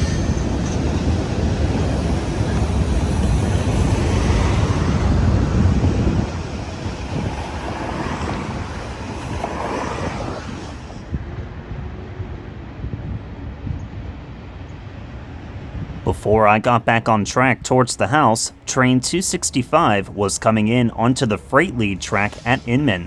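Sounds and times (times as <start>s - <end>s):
wind buffeting microphone: 0.0s - 18.2s
freight train rumbling past: 0.0s - 23.0s.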